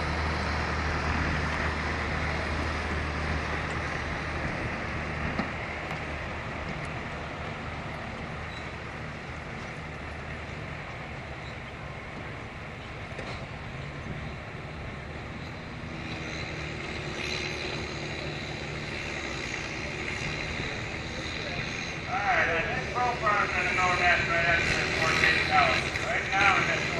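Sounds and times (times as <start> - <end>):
heavy vehicle engine running: 0.0 - 26.9.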